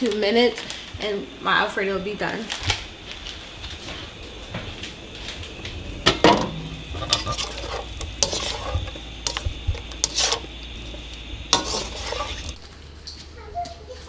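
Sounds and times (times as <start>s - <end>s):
chicken sizzling in oil: 6.0s - 12.6s
spatula scraping a wok: 6.1s - 12.6s.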